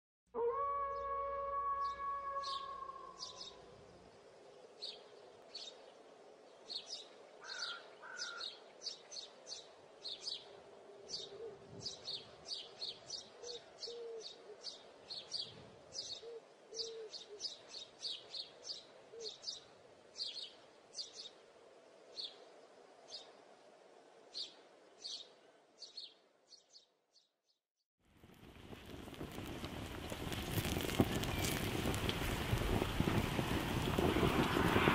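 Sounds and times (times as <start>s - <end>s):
low bird calls: 0.4s - 3.8s, 7.4s - 9.0s, 10.3s - 21.2s
faint birds chirping: 1.8s - 27.6s.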